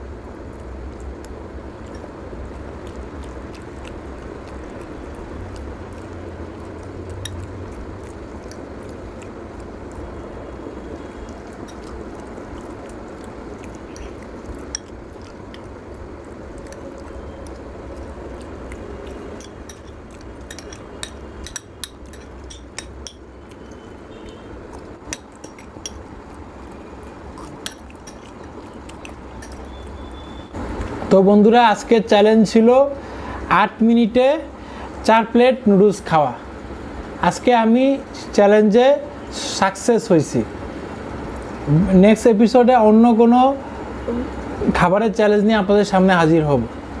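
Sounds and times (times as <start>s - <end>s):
cutlery clinking on plates: 19.4s - 23.2s.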